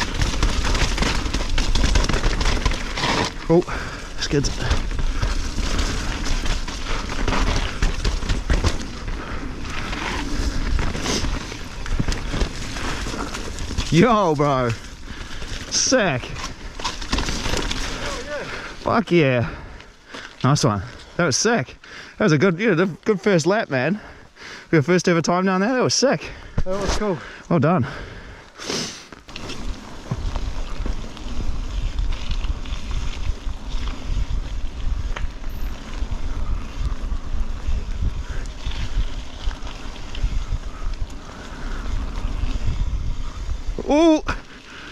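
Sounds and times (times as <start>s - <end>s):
bike knocking and rattling: 0.0s - 18.8s, 29.2s - 44.9s
bike tyres rolling over dirt: 0.0s - 44.9s
wind noise: 29.3s - 44.9s.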